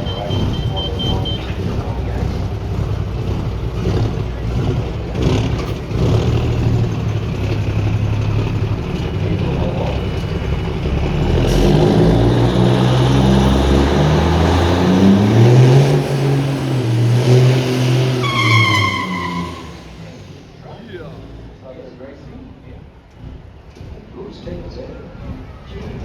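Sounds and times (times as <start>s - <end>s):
truck horn: 0.0s - 1.8s, 12.2s - 20.2s
truck diesel engine accelerating: 0.0s - 26.0s.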